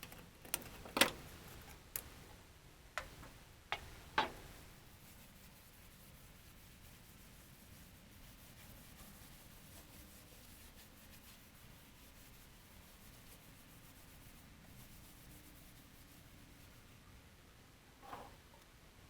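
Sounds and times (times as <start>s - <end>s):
faint irregular scratching: 3.0s - 17.0s, 18.0s - 18.4s.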